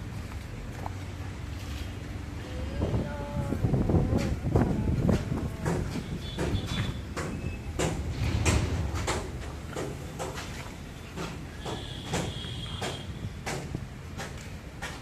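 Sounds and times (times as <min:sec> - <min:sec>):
sharp knocks and clanks: 0:05.1 - 0:15.0
steady low hum: 0:07.7 - 0:11.0.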